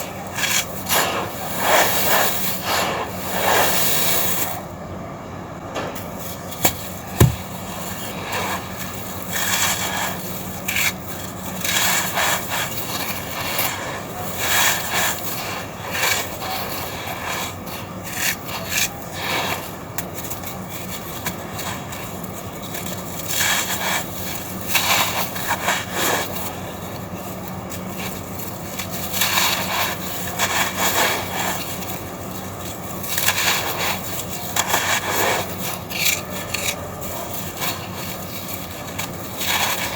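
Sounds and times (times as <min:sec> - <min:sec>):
gritty crunching: 0:06.5 - 0:07.6.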